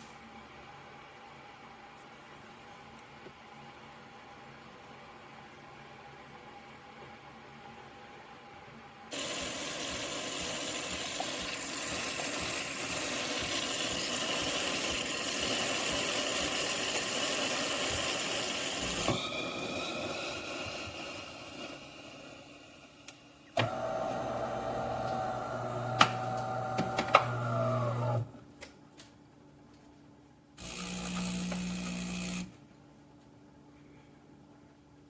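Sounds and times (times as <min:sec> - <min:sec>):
espresso machine running: 0:09.1 - 0:20.8, 0:23.6 - 0:28.3, 0:30.6 - 0:32.5.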